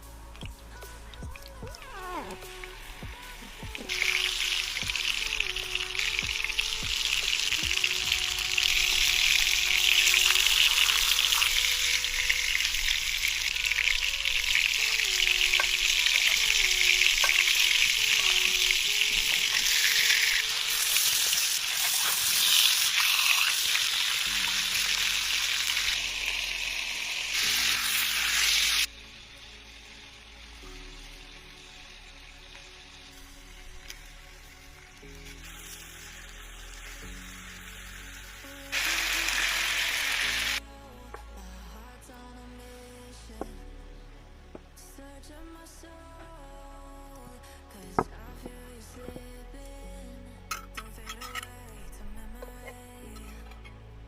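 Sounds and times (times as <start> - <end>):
faint background music: 0.0 - 54.0
food sizzling in hot oil: 2.1 - 40.6.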